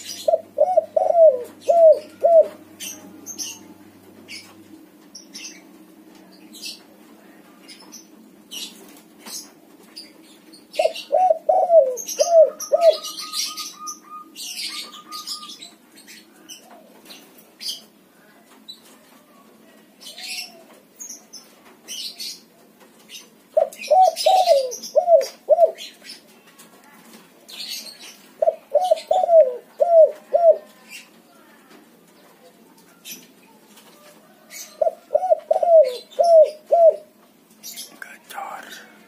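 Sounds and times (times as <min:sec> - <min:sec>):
dove cooing: 0:00.0 - 0:03.6, 0:10.7 - 0:15.8, 0:23.5 - 0:26.0, 0:27.7 - 0:31.0, 0:34.2 - 0:37.2
small birds chirping: 0:00.0 - 0:39.0.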